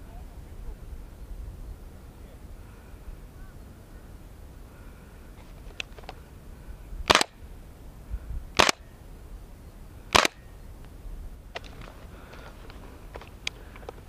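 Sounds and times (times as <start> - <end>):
faint clicks: 5.4 - 6.3, 10.2 - 14.0
airsoft gun shots: 7.1 - 7.4, 8.6 - 8.9, 10.1 - 10.5.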